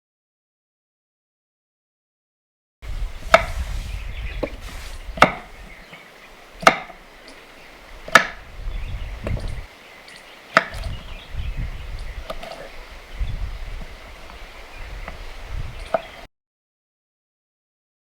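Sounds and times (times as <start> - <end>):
knife chopping on wooden board: 3.3 - 3.6, 5.2 - 5.5, 6.6 - 7.0, 8.0 - 8.4, 10.5 - 10.9.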